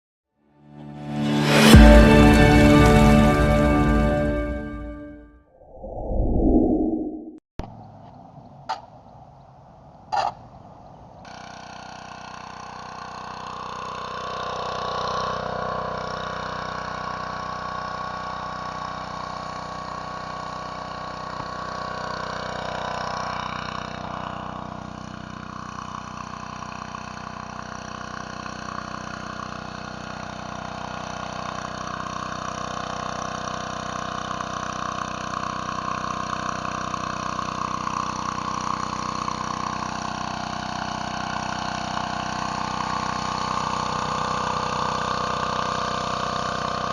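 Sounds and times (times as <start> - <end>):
pressure washer engine running: 11.4 - 46.9.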